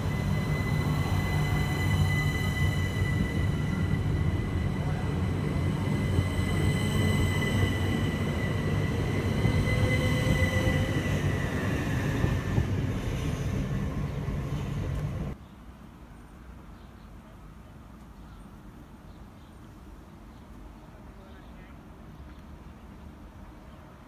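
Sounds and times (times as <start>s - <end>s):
high whine: 0.0s - 11.6s
train wheels rumbling on rails: 0.0s - 15.4s.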